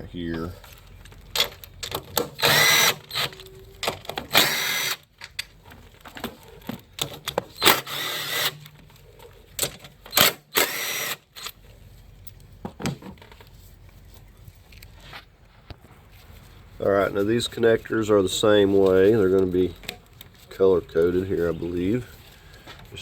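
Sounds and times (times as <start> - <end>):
small clicks and rattles: 0.4 - 4.4
power tool whirring: 2.2 - 5.1, 7.5 - 8.7, 10.1 - 11.5.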